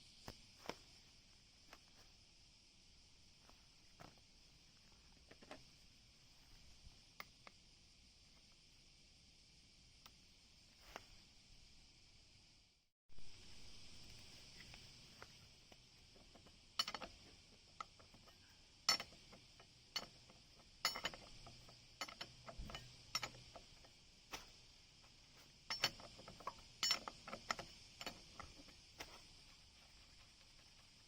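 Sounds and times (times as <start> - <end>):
steady high hiss: 0.0 - 31.0
metal tools clinking: 16.8 - 24.5, 25.4 - 29.3.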